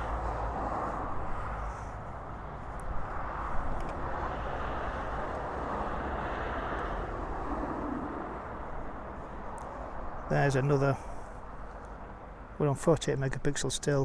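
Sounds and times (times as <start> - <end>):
low outdoor background rumble: 0.0 - 14.0.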